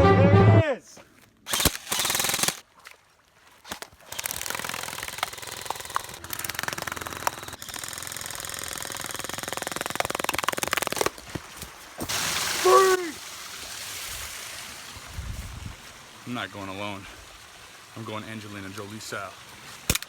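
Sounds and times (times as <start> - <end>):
fast mechanical rattle: 1.5 - 2.6, 4.1 - 10.9.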